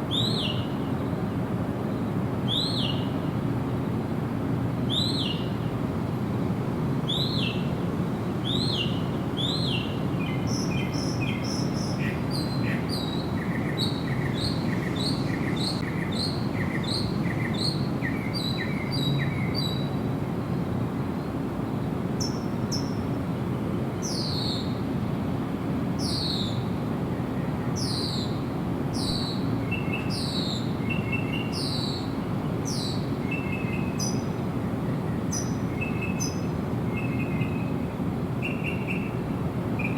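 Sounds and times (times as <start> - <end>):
birds chirping: 35.2 - 37.8, 38.4 - 39.2.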